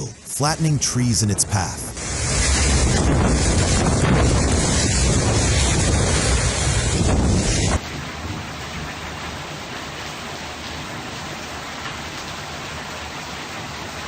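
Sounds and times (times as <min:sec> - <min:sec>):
steady hiss: 0:00.0 - 0:07.8
strong wind buffeting microphone: 0:01.9 - 0:09.0.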